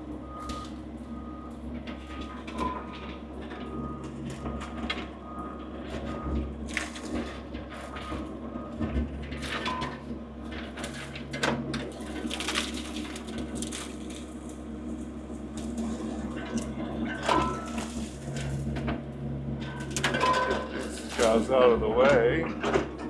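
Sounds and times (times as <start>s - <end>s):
small diesel engine running: 0.0s - 23.0s
machine clanks and squeaks: 7.0s - 14.6s, 15.6s - 19.0s, 19.6s - 23.0s.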